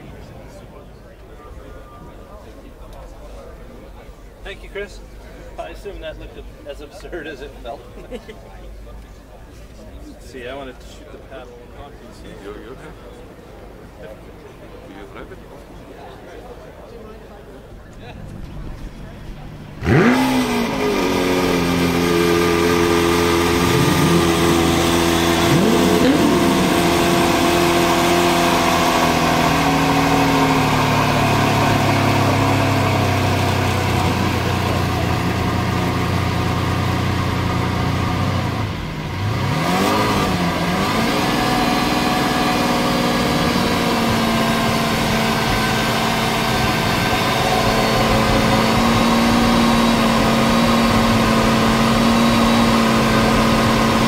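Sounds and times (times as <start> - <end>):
sports car engine revving and idling: 18.3 - 54.0.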